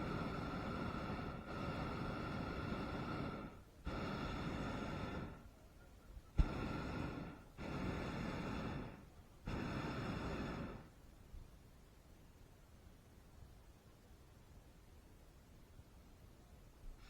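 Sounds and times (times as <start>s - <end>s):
propane burner blasts: 0.0s - 11.0s.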